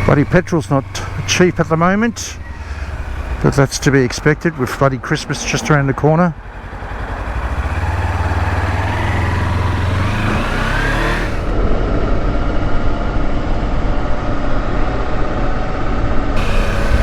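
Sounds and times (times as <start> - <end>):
motorcycle engine accelerating: 0.0 - 12.6, 16.4 - 17.0
wind buffeting riding noise: 0.0 - 13.9, 16.4 - 17.0.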